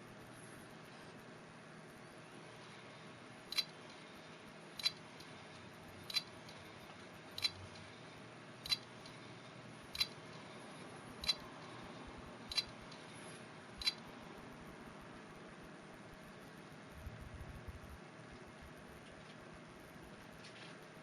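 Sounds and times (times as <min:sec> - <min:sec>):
hard drive whir: 0:00.0 - 0:21.0
hard drive clicking: 0:03.4 - 0:08.0, 0:08.6 - 0:14.1.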